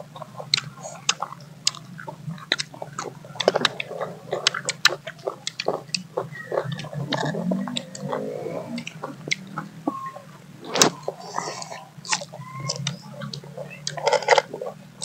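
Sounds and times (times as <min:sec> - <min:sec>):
wet chewing: 0:00.0 - 0:15.0
crunching fruit slices: 0:00.1 - 0:10.0, 0:10.7 - 0:15.0.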